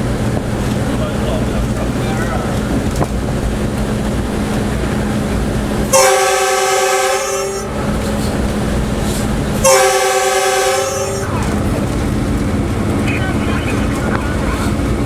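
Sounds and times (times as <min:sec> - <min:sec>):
rumble of running train: 0:00.0 - 0:15.0
locomotive horn blasts: 0:05.9 - 0:08.5, 0:09.6 - 0:11.8.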